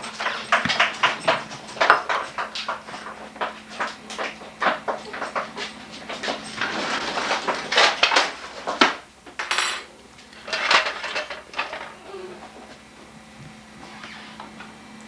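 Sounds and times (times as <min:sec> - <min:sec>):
dishes and cutlery clattering: 0:00.0 - 0:12.0.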